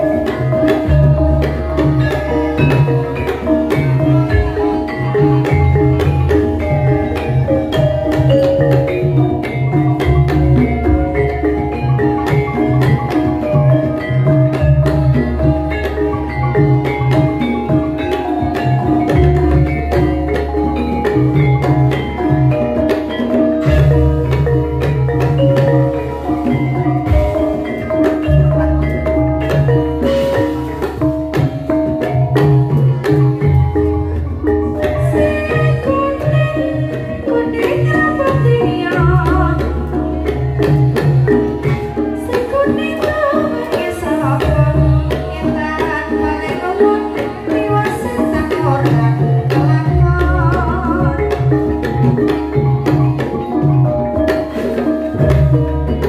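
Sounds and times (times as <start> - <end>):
metallophones striking melody: 0.0 - 56.0
woman singing: 34.8 - 40.4, 42.0 - 51.8.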